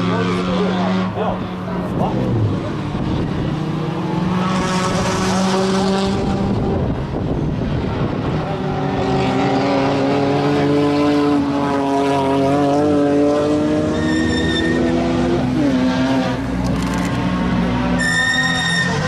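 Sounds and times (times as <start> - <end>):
race car engine accelerating: 0.0 - 19.0
brief high squeal: 18.0 - 19.0.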